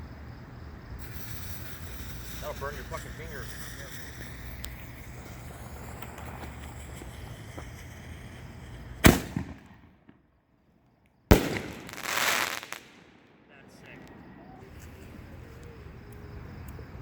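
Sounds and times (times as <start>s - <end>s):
firework launch bang: 1.0s - 10.2s, 11.3s - 13.6s
firework shell bursting: 1.0s - 10.2s, 11.3s - 13.6s.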